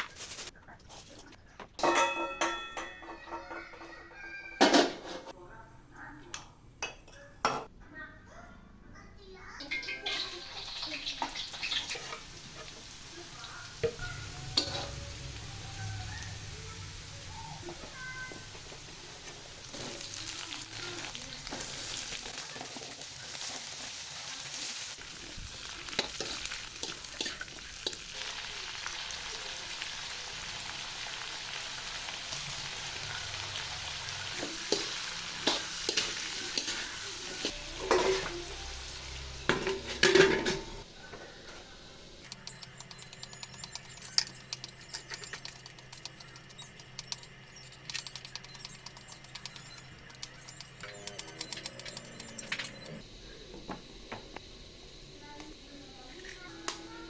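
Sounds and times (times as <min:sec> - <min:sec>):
food sizzling in a frying pan: 0:00.0 - 0:00.5, 0:09.4 - 0:53.0
scattered clicks and taps: 0:42.2 - 0:53.0.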